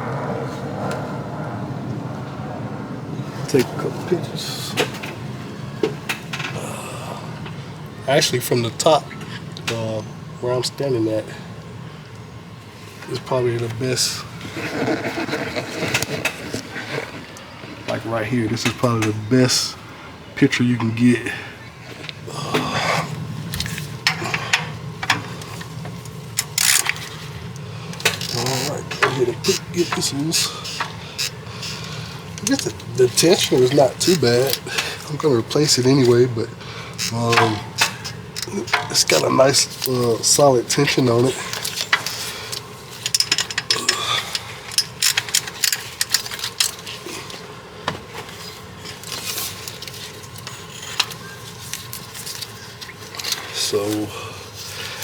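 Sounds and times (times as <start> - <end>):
steady low hum: 0.0 - 55.0
drive belt rubbing and scraping: 13.1 - 19.2, 23.0 - 47.5
clicks and knocks of metal tools: 23.5 - 35.1, 37.0 - 47.4.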